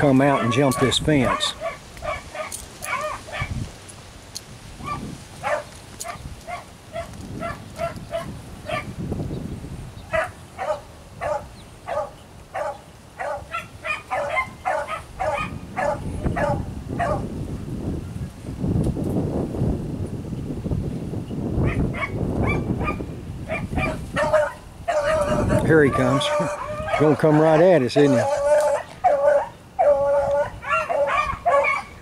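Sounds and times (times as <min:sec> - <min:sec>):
dogs barking: 0:00.1 - 0:03.6, 0:04.8 - 0:09.0, 0:10.1 - 0:17.3, 0:21.6 - 0:32.0.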